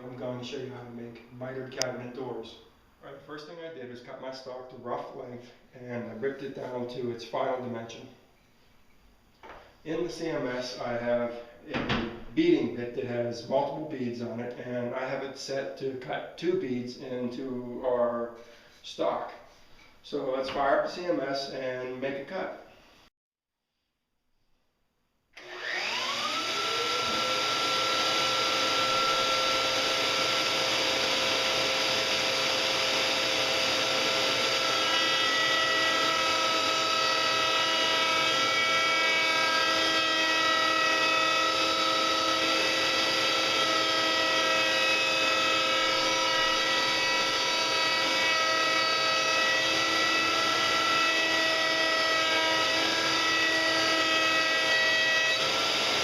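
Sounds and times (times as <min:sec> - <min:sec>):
router motor high whine: 0:25.4 - 0:56.0.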